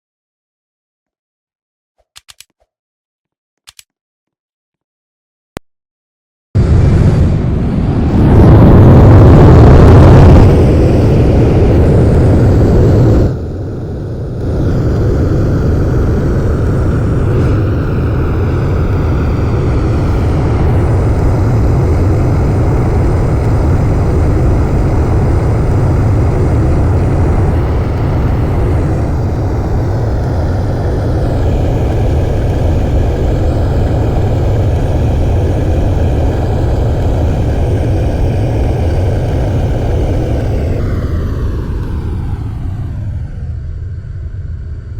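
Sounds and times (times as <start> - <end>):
airplane rumble: 6.6 - 44.9.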